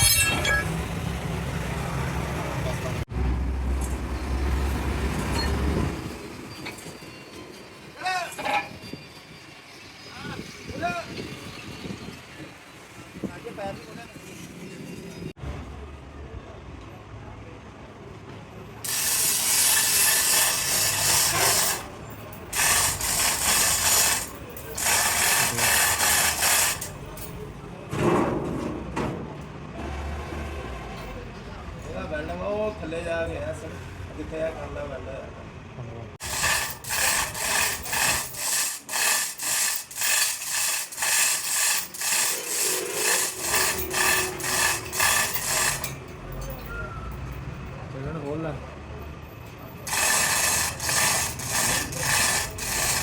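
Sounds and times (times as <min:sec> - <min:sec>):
hacksaw cutting metal: 0:00.0 - 0:00.7, 0:18.8 - 0:27.3, 0:36.2 - 0:46.7, 0:49.8 - 0:53.0
pneumatic impact wrench rattling: 0:18.8 - 0:27.1, 0:36.2 - 0:46.6, 0:49.9 - 0:53.0.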